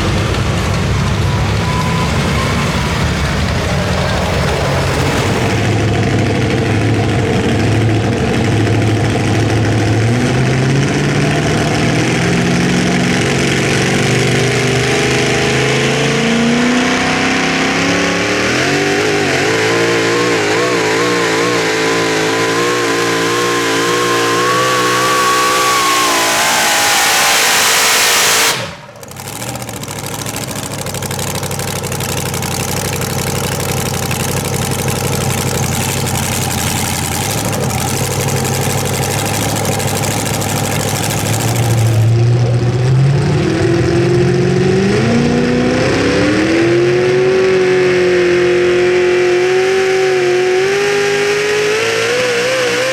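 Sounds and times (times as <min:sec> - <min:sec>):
engine running at lower revs: 0:00.0 - 0:52.9
truck engine at full throttle: 0:00.0 - 0:52.9.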